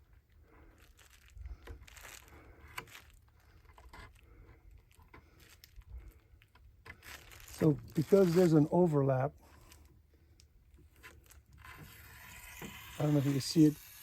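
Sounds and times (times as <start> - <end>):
fiberglass cloth tearing and crinkling: 0.7 - 4.2, 6.9 - 9.9, 10.8 - 14.0.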